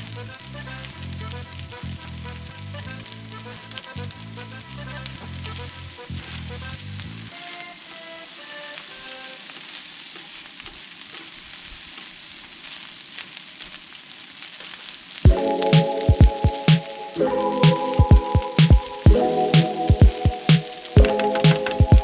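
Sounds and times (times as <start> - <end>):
food sizzling in a pan: 4.2 - 22.0
background music with beat: 15.3 - 22.0.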